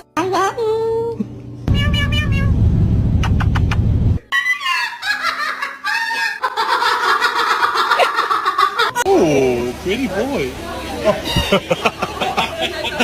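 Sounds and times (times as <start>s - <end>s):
low rumble: 1.7s - 4.3s
parrot chuckling: 3.2s - 9.0s.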